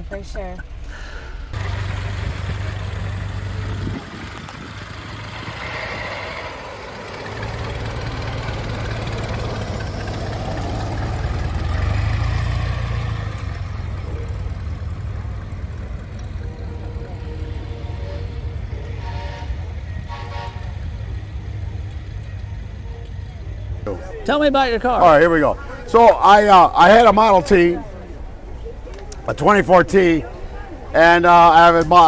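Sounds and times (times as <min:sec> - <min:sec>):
old car engine rumbling: 0:01.6 - 0:23.9.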